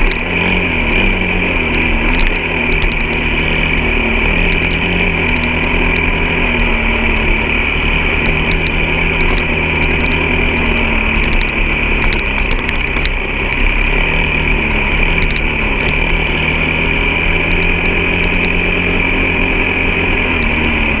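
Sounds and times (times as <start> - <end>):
clicks and rattles: 0.0 - 0.4, 1.0 - 6.2, 8.2 - 14.0, 14.7 - 16.2
high whine: 0.0 - 21.0
vehicle engine running: 0.0 - 21.0.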